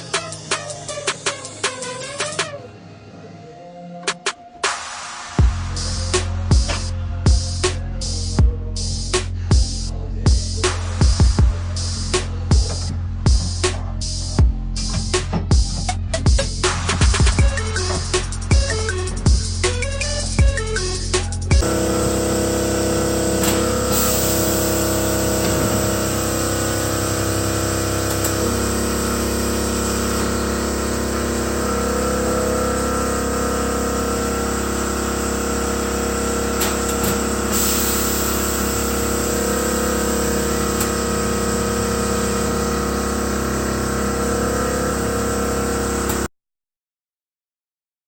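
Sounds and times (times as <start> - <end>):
machine humming: 21.6 - 46.3.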